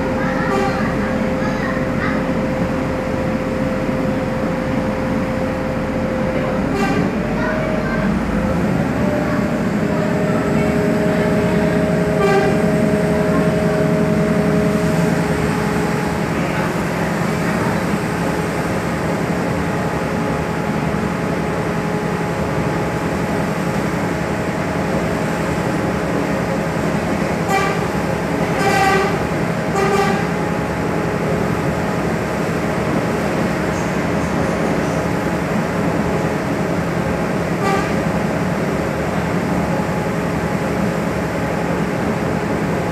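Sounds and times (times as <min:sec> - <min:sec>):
train running noise: 0:00.0 - 0:42.9
short horn toots: 0:37.6 - 0:38.0.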